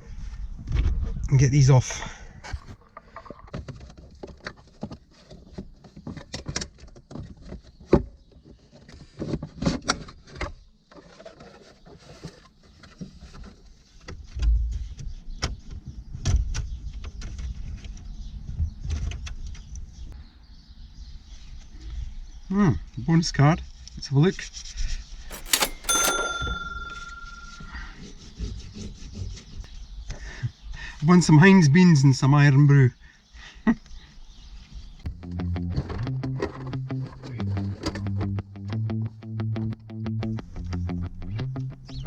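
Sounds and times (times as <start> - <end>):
hand tools and trim rattling: 25.3 - 27.8.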